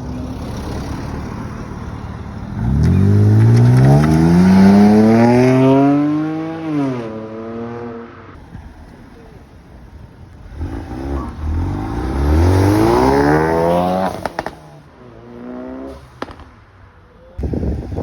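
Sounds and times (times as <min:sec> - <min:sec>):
car accelerating hard: 0:02.6 - 0:08.1, 0:10.5 - 0:16.4.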